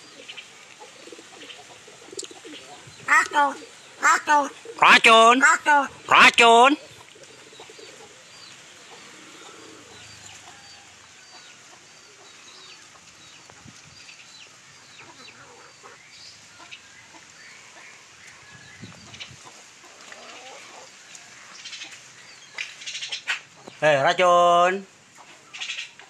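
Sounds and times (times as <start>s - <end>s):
low clucking calls: 0.0s - 10.6s.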